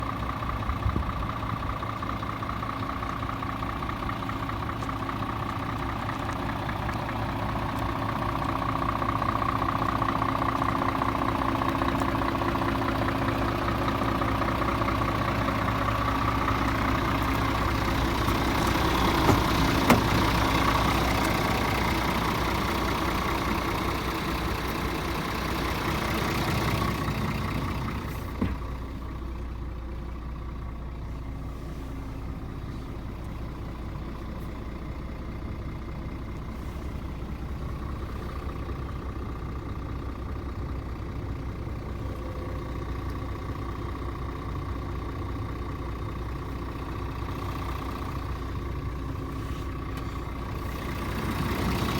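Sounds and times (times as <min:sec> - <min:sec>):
diesel truck engine idling: 0:00.0 - 0:51.9.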